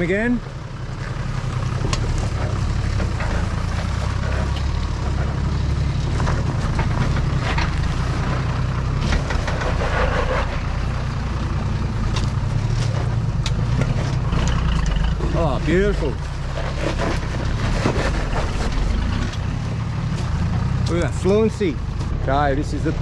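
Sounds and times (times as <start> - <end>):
vehicle engine running under load: 0.0 - 23.0.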